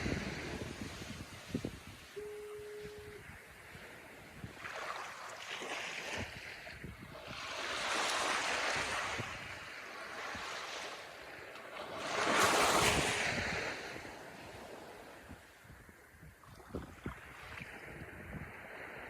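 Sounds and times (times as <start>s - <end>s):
waves breaking and washing in: 0.0s - 19.0s
wind: 0.0s - 19.0s.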